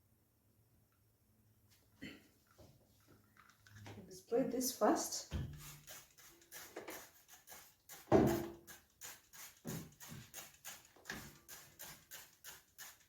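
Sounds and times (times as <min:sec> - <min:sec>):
spray bottle squirting: 0:05.5 - 0:13.0.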